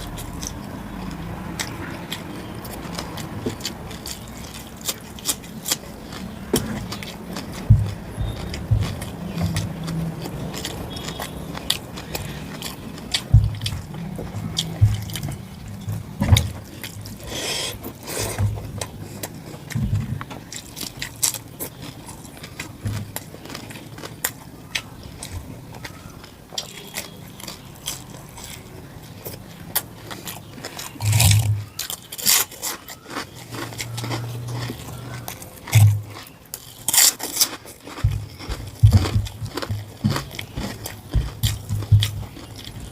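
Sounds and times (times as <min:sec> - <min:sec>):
chewing and mouth sounds: 0:00.0 - 0:42.9
soft low thuds: 0:07.5 - 0:10.5, 0:13.1 - 0:17.2, 0:38.0 - 0:42.4.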